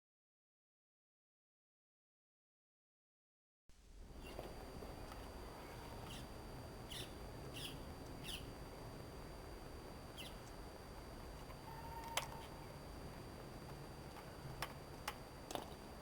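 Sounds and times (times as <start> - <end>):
birds chirping: 5.6 - 8.5, 10.1 - 10.5.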